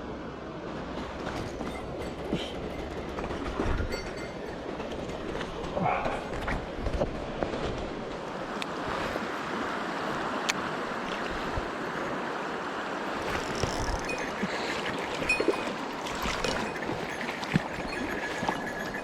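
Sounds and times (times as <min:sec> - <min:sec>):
stream rushing: 0:04.2 - 0:19.0.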